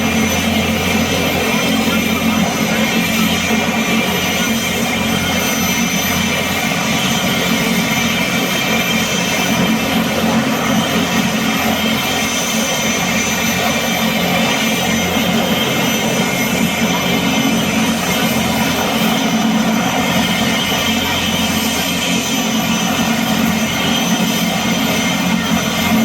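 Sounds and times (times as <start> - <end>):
helicopter engine and rotor: 0.0 - 26.0.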